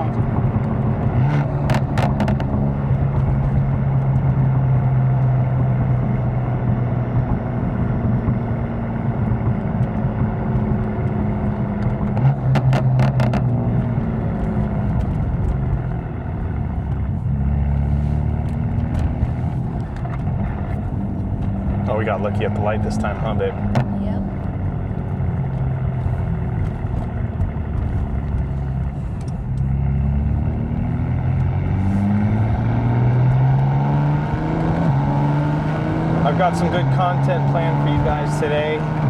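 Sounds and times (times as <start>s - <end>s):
car engine running: 0.0s - 39.0s
sharp exhaust pops: 0.2s - 8.5s, 9.1s - 30.1s.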